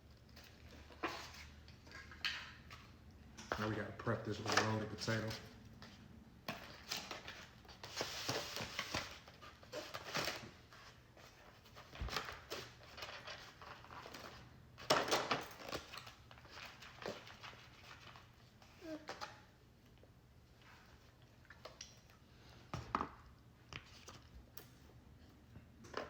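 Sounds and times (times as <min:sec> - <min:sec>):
packaging rustling and crinkling: 0:03.6 - 0:19.4.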